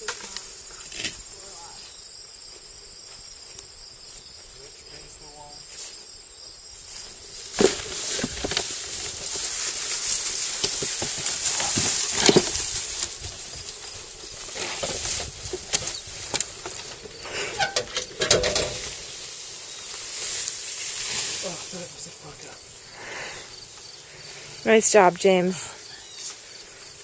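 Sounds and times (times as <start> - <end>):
plant stalks rustling: 6.8 - 27.0
stalks snapping: 10.1 - 13.8.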